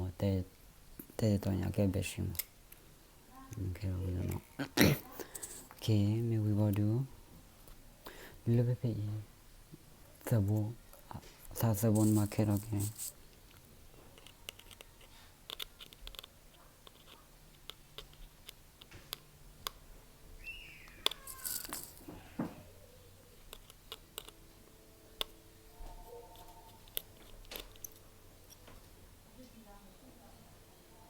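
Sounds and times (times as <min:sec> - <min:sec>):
small tools clicking and tapping: 0:11.4 - 0:19.8, 0:20.9 - 0:22.6, 0:23.4 - 0:24.4, 0:25.2 - 0:29.0.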